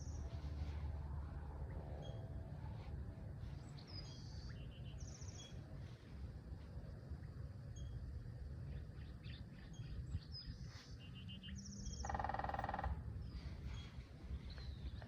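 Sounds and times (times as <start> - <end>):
low rumble: 0.0 - 8.9
small birds chirping: 2.0 - 6.1, 8.6 - 15.0.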